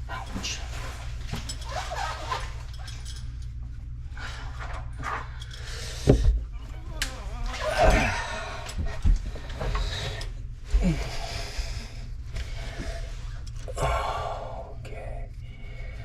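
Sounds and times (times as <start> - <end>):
man breathing heavily: 7.8 - 16.0.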